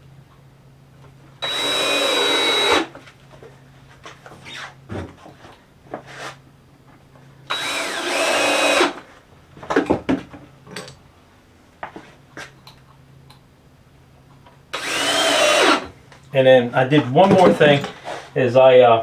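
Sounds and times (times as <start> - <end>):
power drill motor: 1.4 - 3.0, 7.5 - 9.0, 14.7 - 15.9.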